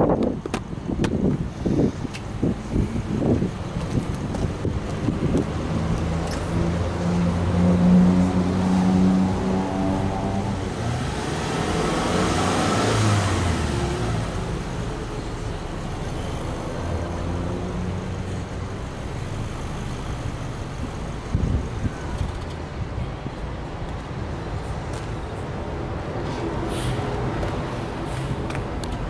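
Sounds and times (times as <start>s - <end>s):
car engine revving and idling: 4.3s - 21.6s.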